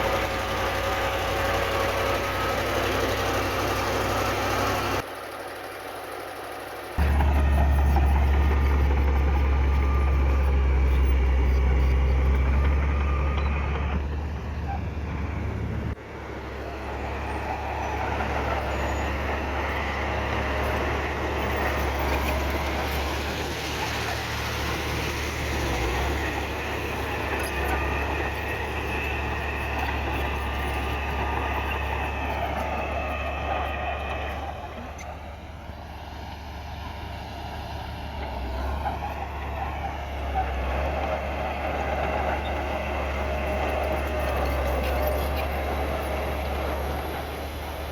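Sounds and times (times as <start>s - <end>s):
diesel earthmoving machinery running: 0.0s - 47.9s.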